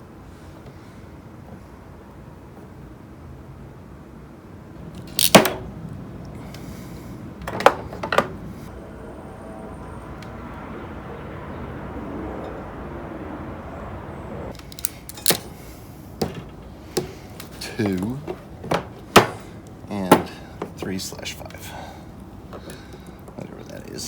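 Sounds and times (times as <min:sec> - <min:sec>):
low background noise: 0:00.0 - 0:24.0
tools knocking and clacking: 0:07.4 - 0:08.4, 0:16.2 - 0:21.0.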